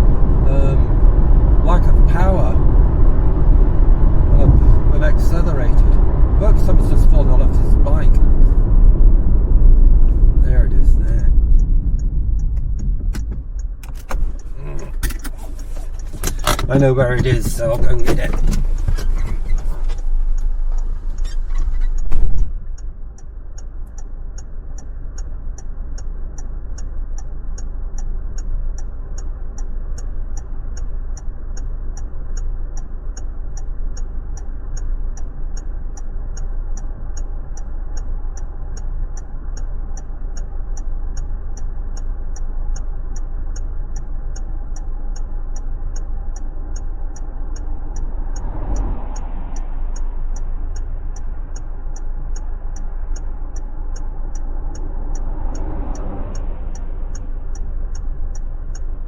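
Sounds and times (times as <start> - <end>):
car engine idling: 0.0 - 59.0
turn signal ticking: 0.0 - 59.0.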